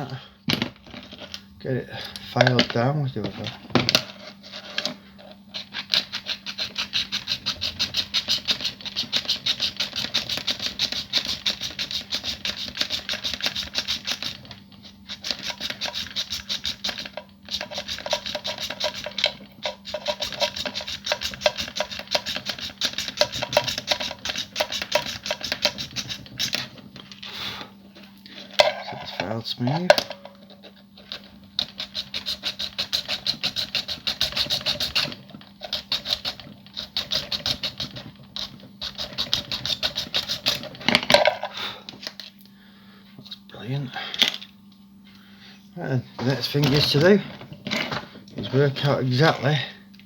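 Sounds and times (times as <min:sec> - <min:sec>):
hand file rasping on plastic: 0:04.0 - 0:26.8, 0:31.0 - 0:40.8.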